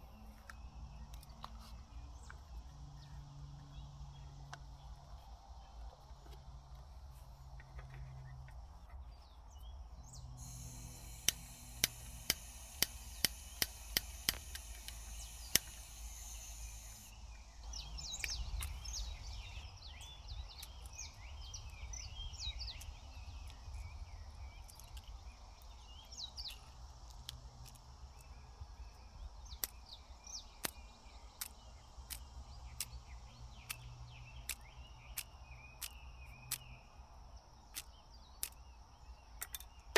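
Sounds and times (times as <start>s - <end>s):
small birds chirping: 0.0s - 39.9s
sharp clicks: 10.4s - 17.1s, 24.6s - 36.8s, 37.7s - 38.8s.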